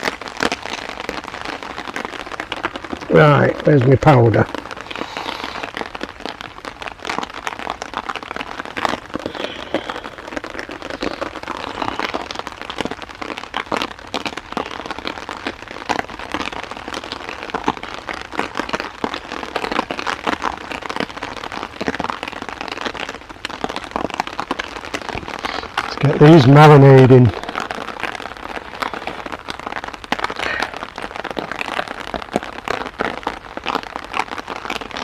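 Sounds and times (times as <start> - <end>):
heavy rain drumming on a tarp: 0.0 - 35.0.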